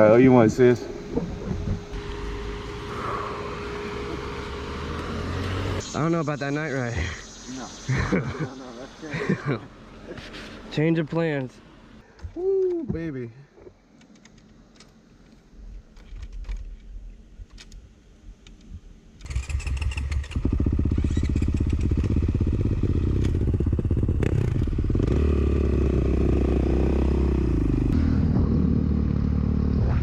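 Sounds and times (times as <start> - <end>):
dirt bike engine revving: 1.0 - 7.2, 19.2 - 30.0.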